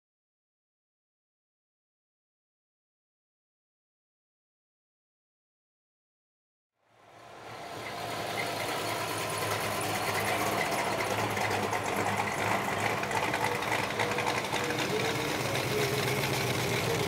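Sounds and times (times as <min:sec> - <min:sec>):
car engines driving slowly past: 0:06.9 - 0:17.0.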